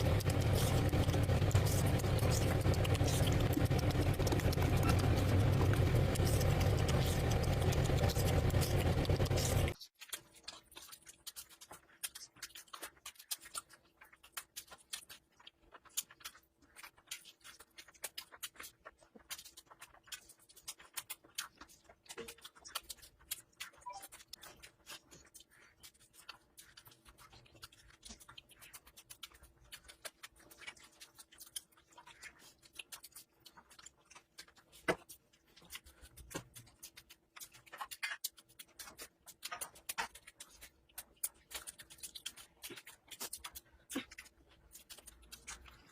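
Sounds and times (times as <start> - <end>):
wet chewing and smacking: 0.0 - 45.9.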